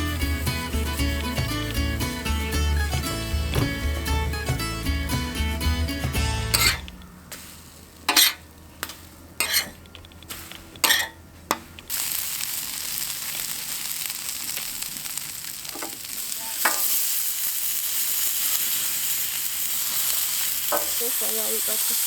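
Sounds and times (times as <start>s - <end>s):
food sizzling in a frying pan: 0.0s - 2.5s, 11.9s - 22.0s.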